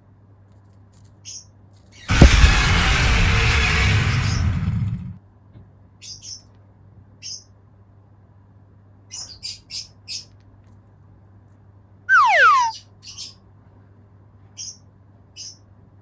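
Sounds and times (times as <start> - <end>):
cockatiel chirping: 12.1 - 12.8
cockatiel whistle falling in pitch: 12.1 - 12.8.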